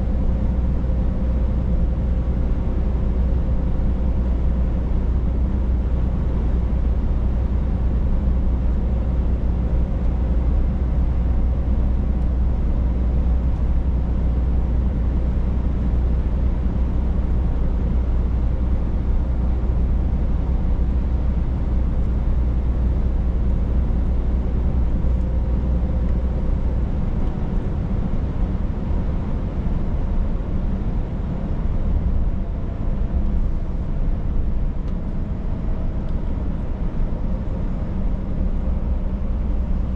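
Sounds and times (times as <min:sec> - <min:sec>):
truck engine drone: 0:00.0 - 0:39.9
road noise: 0:08.2 - 0:39.9.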